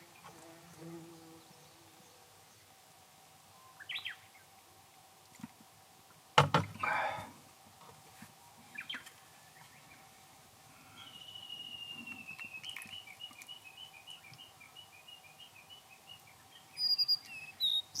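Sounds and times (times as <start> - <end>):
birds chirping: 10.8 - 18.0.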